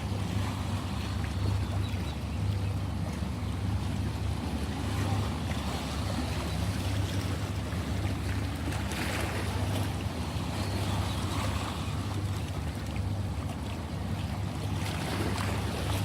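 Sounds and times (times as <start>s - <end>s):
ocean waves washing: 0.0s - 16.0s
steady low hum: 0.0s - 16.0s.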